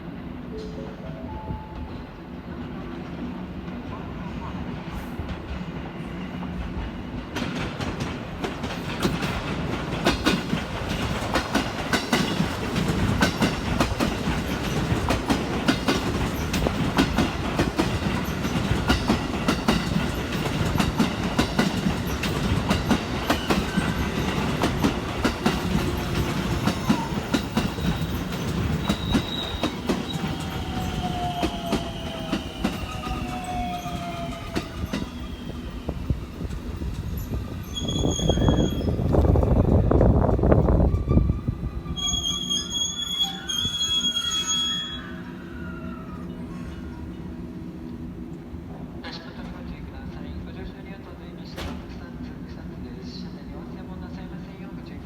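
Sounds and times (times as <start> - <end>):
train wheels clacking: 4.8 - 40.1
falling train whine: 9.6 - 49.5.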